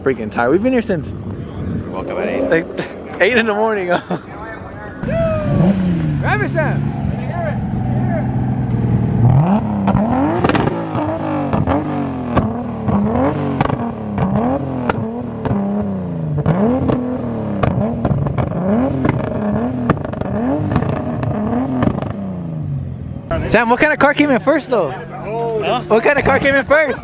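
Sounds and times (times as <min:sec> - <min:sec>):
car engine revving: 0:05.0 - 0:27.0
exhaust pops and crackles: 0:09.6 - 0:22.2.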